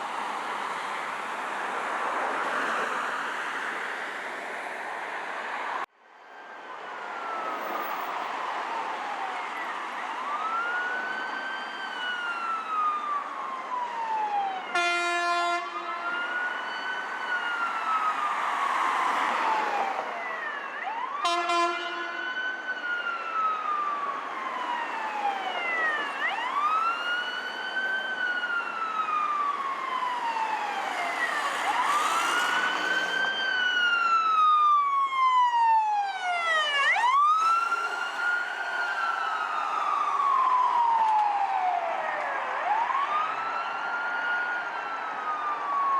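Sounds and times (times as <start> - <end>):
sirens wailing: 0.0 - 45.9
short horn blasts: 21.3 - 22.1.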